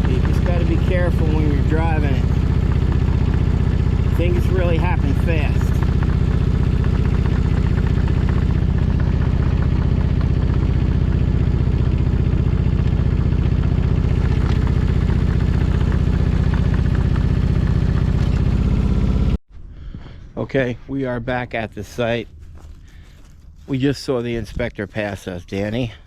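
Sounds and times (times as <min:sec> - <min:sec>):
machine engine running steadily: 0:00.0 - 0:19.4, 0:20.4 - 0:26.0.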